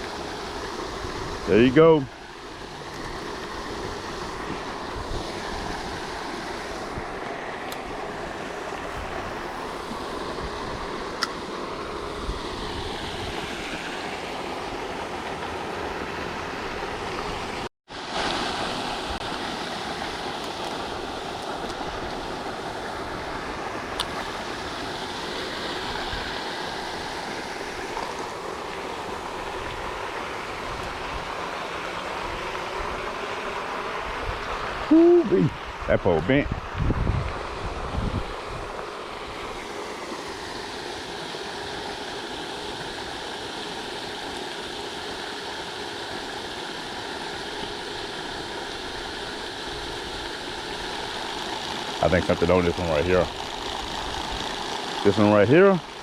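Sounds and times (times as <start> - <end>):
water fountain splashing: 12.6 - 56.0.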